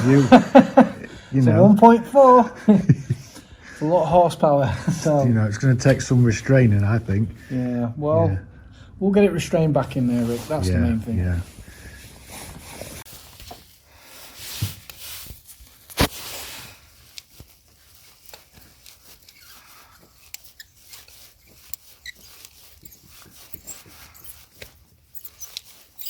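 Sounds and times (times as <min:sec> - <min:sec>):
metal hand tools clicking and scraping: 0:18.2 - 0:26.0.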